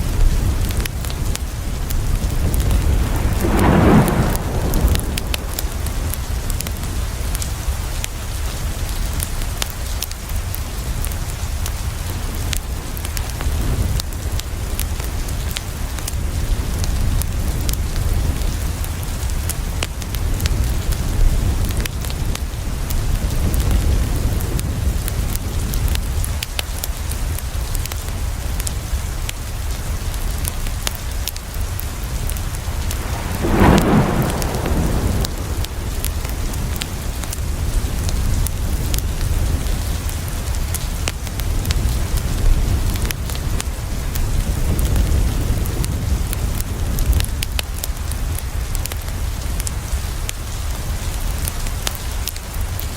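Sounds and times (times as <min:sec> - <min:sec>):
steady rain falling: 0:00.0 - 0:52.9
thunder rolling: 0:00.3 - 0:07.7, 0:32.1 - 0:38.8.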